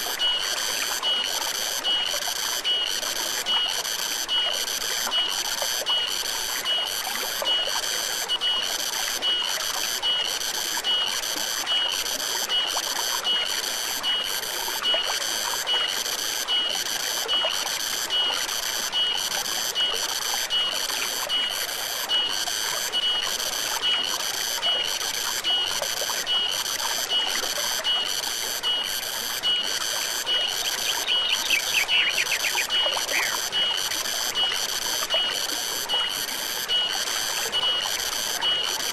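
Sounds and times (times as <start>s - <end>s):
flowing stream: 0.0s - 38.9s
insects chirping rhythmically: 0.0s - 38.9s.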